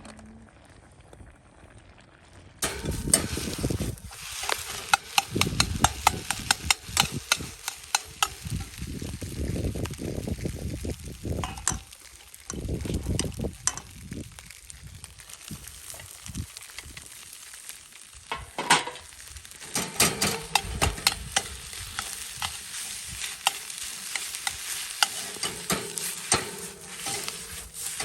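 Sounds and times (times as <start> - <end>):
rice sizzling in a pan: 1.4 - 28.0
metal utensil scraping pan: 2.6 - 8.8, 11.4 - 13.9, 18.3 - 28.0.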